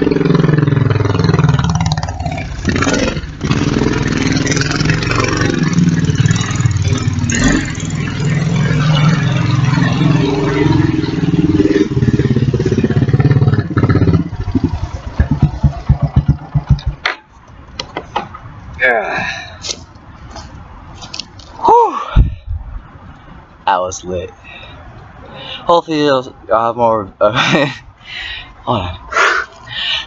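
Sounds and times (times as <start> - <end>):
atv engine revving: 0.0 - 17.2.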